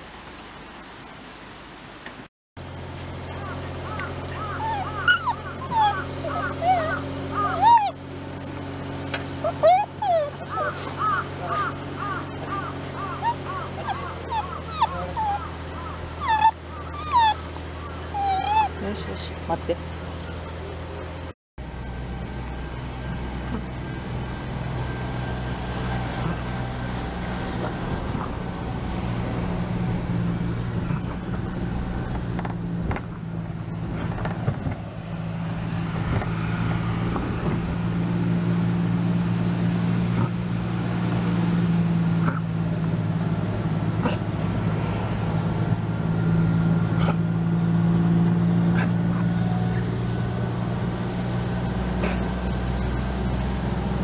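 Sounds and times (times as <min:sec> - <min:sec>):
motor humming: 0:03.4 - 0:14.6.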